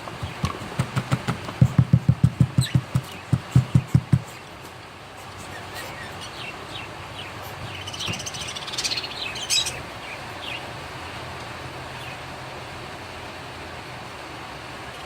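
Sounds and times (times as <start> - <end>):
raspy pulsing bird call: 5.2 - 10.6
cockatiels chirping: 5.4 - 10.7.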